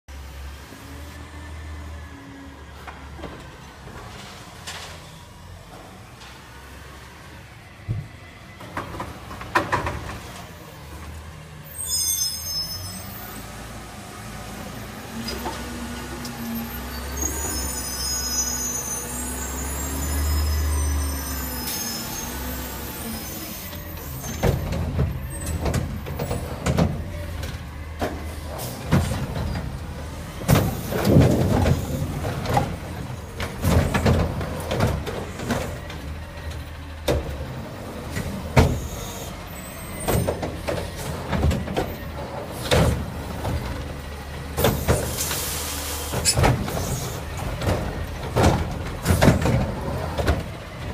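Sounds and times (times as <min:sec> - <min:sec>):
high squeal: 0:11.6 - 0:13.6, 0:16.4 - 0:24.5
garbage truck engine running: 0:19.1 - 0:50.9.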